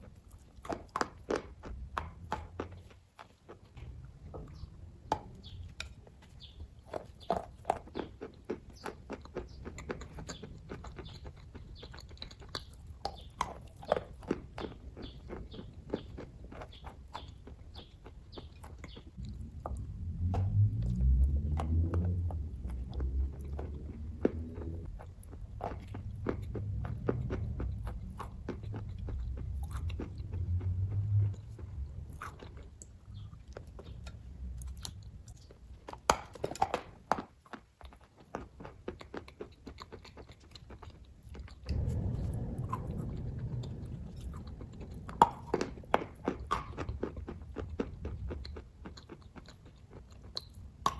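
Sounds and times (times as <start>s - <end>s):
chewing and wet mouth clicks: 0.0s - 50.9s
low hum: 19.2s - 35.6s, 41.5s - 48.9s.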